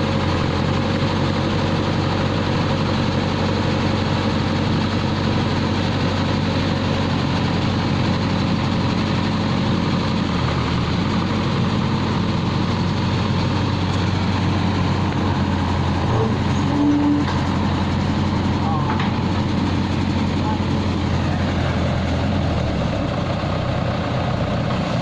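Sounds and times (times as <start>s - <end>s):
diesel engine running: 0.0s - 25.0s
brief higher tone: 16.2s - 17.4s.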